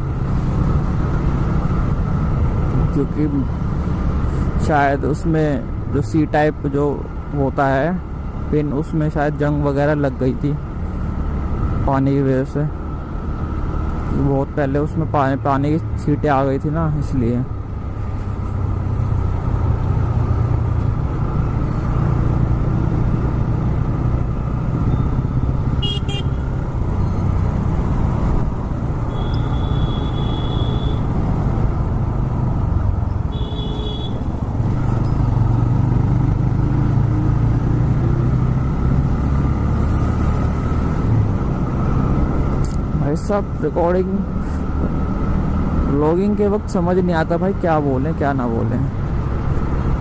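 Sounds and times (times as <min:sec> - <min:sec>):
road and wind noise: 0:00.0 - 0:50.0
vehicle horn: 0:25.8 - 0:26.4, 0:29.1 - 0:31.1, 0:33.3 - 0:34.2.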